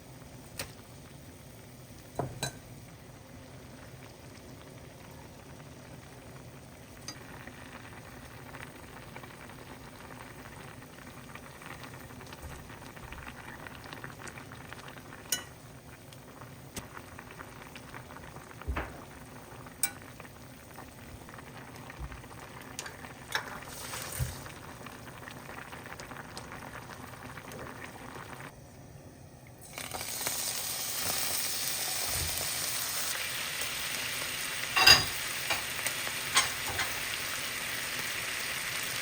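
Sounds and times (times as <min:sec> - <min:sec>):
food bubbling and sizzling: 0:00.0 - 0:28.7, 0:29.6 - 0:39.0
utensil clinking against pan: 0:34.8 - 0:35.7.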